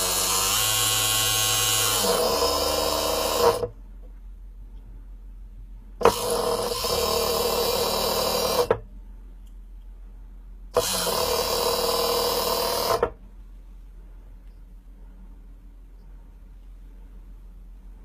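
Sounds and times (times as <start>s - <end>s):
small electric motor and pump whining: 0.0s - 3.7s, 6.0s - 8.8s, 10.8s - 13.2s.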